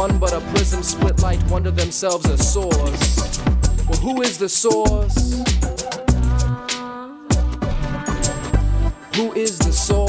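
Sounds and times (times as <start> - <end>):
rapping: 0.0 - 7.0, 9.1 - 10.0
hip-hop music with heavy bass: 0.0 - 10.0.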